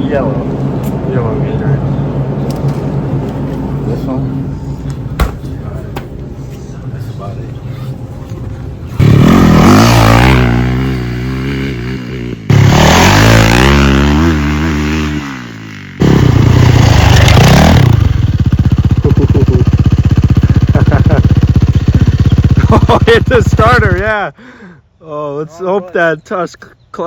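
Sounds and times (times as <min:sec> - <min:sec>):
dirt bike engine revving: 0:09.0 - 0:24.1.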